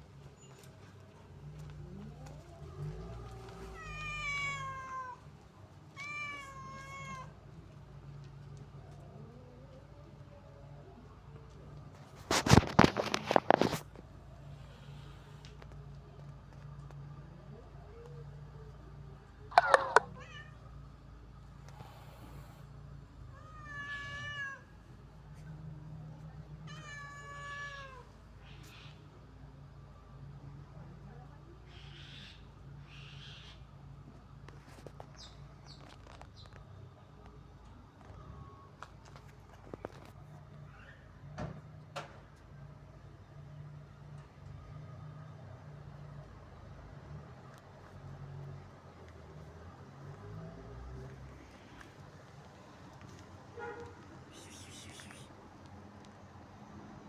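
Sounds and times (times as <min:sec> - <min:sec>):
cat meowing: 0:02.5 - 0:05.2, 0:05.9 - 0:07.4, 0:19.5 - 0:20.6, 0:23.3 - 0:24.7, 0:26.7 - 0:28.1, 0:54.3 - 0:55.3.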